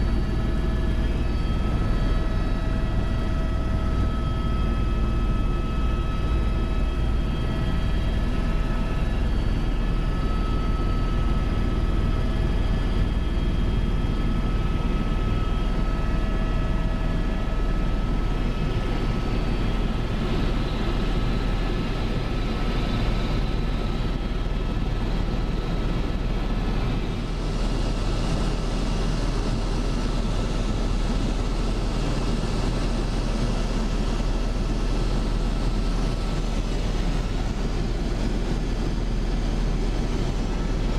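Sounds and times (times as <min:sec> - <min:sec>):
high steady whining tones: 0:00.0 - 0:21.3
helicopter cabin drone: 0:00.0 - 0:40.9.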